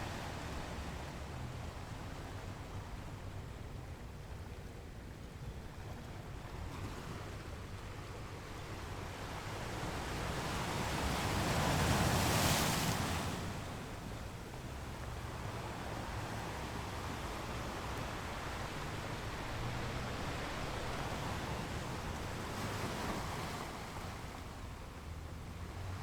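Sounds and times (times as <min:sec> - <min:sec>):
sea rumbling: 0:05.6 - 0:26.0.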